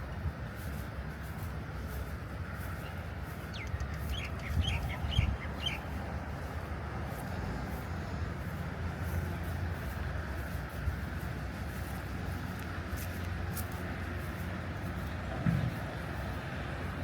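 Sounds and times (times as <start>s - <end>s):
bird chirping: 3.5s - 6.0s.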